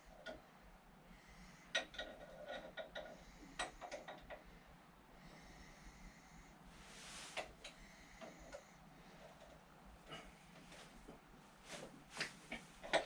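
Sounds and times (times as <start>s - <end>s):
faint hiss: 5.4s - 8.8s.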